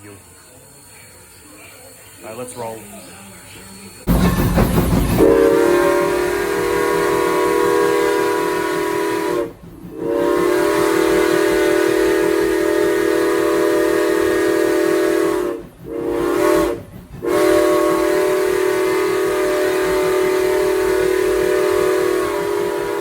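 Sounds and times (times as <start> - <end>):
steam locomotive whistle blasts: 4.9 - 23.0.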